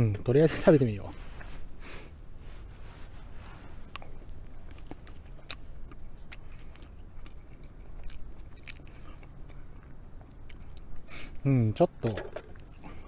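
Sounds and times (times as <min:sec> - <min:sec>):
person chewing crunchy rice: 0:02.7 - 0:11.1.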